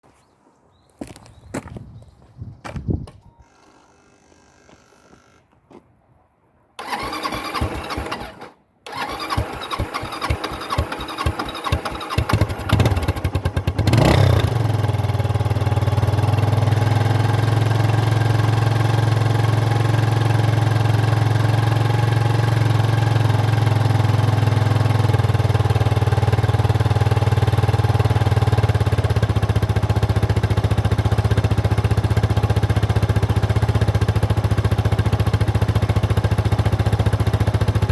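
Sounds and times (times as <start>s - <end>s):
motorcycle engine cranking: 6.8s - 14.6s
motorcycle engine revving and idling: 6.8s - 37.9s.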